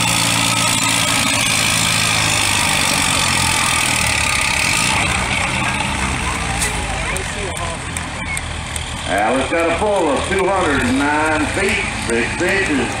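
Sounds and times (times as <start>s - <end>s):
tractor engine under load: 0.0s - 13.0s.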